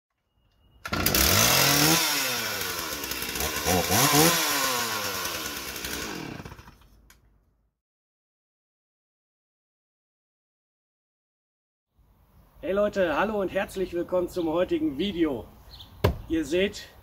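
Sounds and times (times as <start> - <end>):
chainsaw engine revving: 0.8 - 6.9.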